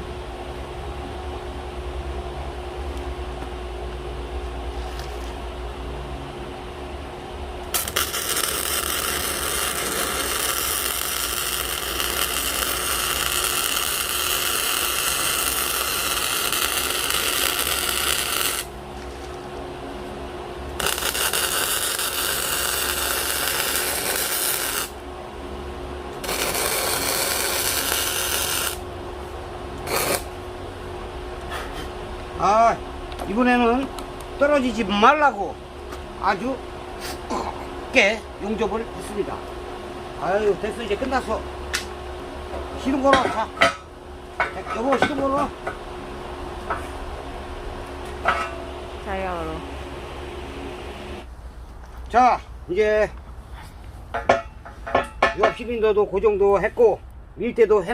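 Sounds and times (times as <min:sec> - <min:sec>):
constant low hum: 0:00.0 - 0:57.9
arc welding crackling hiss: 0:07.7 - 0:18.8, 0:20.7 - 0:25.0, 0:26.2 - 0:28.9, 0:29.8 - 0:30.4.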